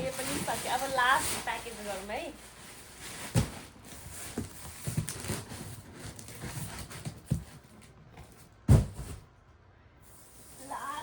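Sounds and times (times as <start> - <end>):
cardboard parcel rustling: 0.0 - 9.4
dull thumps on cardboard: 8.2 - 9.2.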